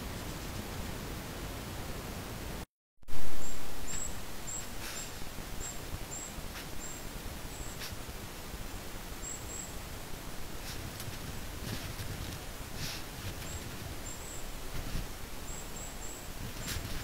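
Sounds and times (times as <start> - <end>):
steady camera hiss: 0.0 - 17.0
small bird chirping: 3.4 - 8.0, 8.8 - 9.8, 13.4 - 14.6.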